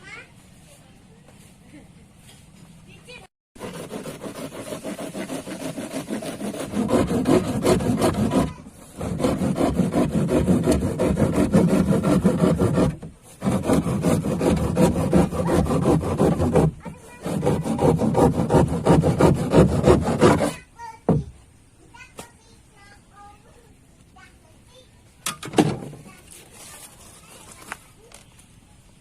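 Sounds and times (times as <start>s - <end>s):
hand saw cutting: 3.6s - 20.7s.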